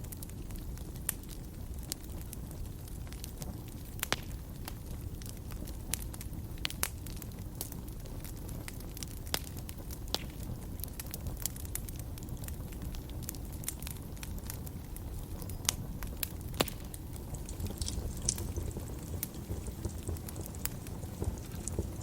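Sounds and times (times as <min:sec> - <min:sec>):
fire popping: 0:00.0 - 0:22.0
wood fire crackling: 0:00.0 - 0:22.0.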